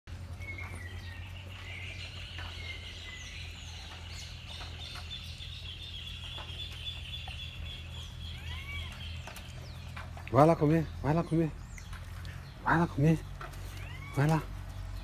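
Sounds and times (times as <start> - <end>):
high-pitched bird chirring: 4.6 - 9.5.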